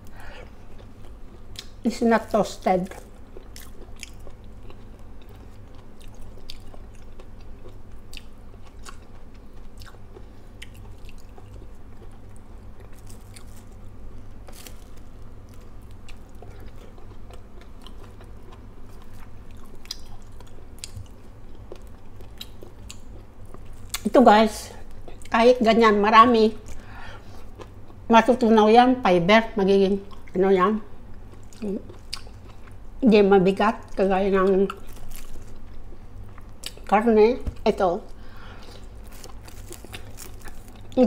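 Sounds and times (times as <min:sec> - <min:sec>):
low steady hum: 0:00.0 - 0:41.0
person chewing: 0:02.8 - 0:24.1, 0:31.1 - 0:32.9, 0:33.9 - 0:36.9, 0:38.1 - 0:41.0.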